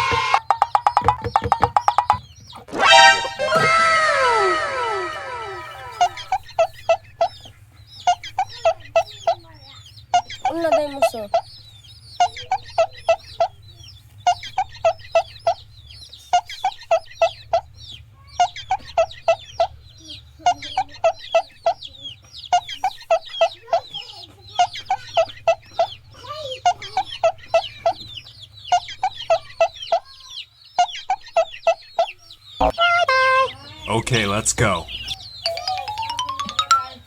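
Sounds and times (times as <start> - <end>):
chickens clucking: 0.0 - 37.0
chicks peeping: 0.0 - 37.0.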